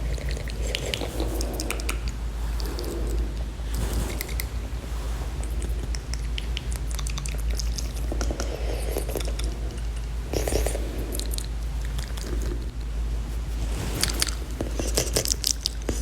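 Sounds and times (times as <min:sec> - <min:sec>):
lip smacks: 0:00.0 - 0:04.6, 0:05.4 - 0:12.8, 0:13.9 - 0:16.0
steady low hum: 0:00.0 - 0:16.0
tongue clicks: 0:05.9 - 0:12.7.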